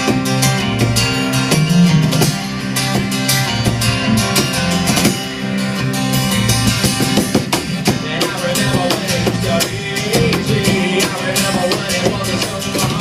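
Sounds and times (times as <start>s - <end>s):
bass playing: 0.0s - 13.0s
strummed acoustic guitar: 0.0s - 13.0s
person singing: 7.9s - 13.0s.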